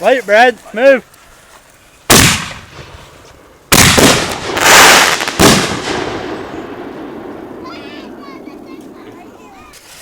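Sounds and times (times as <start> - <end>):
firework bangs: 2.1 - 10.0
firework rushing burst: 3.7 - 8.2.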